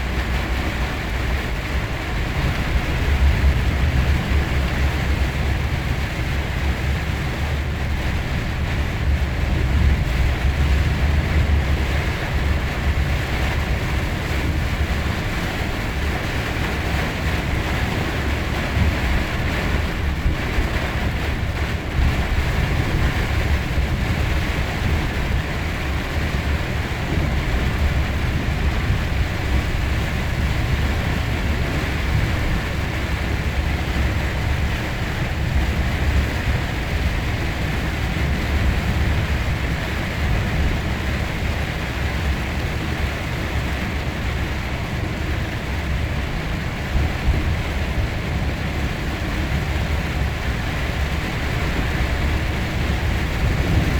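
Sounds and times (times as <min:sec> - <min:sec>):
rain: 0:00.0 - 0:53.9
wet road noise: 0:00.0 - 0:53.9
wind buffeting microphone: 0:00.0 - 0:53.9.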